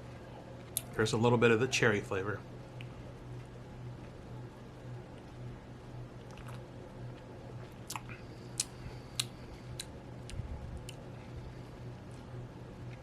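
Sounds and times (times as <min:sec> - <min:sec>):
steady low hum: 0:00.0 - 0:13.0
lip smacks and tongue clicks: 0:06.2 - 0:11.0.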